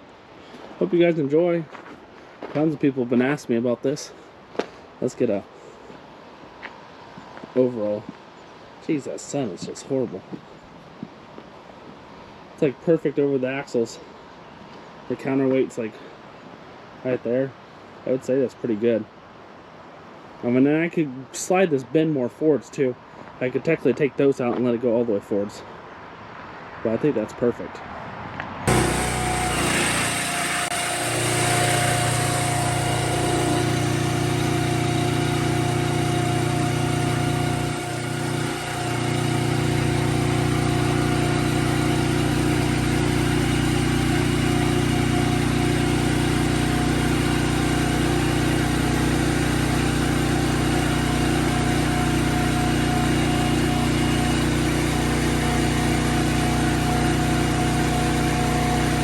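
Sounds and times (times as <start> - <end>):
engine running: 28.7 - 59.0.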